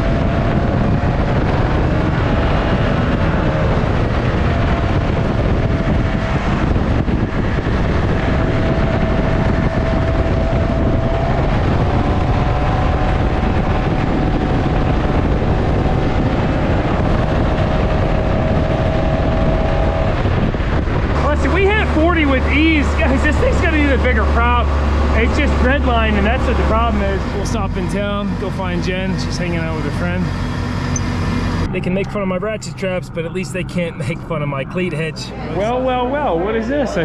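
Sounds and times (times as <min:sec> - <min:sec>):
rush of wind and water: 0:00.0 - 0:28.6
motorboat engine at full throttle: 0:00.0 - 0:34.2.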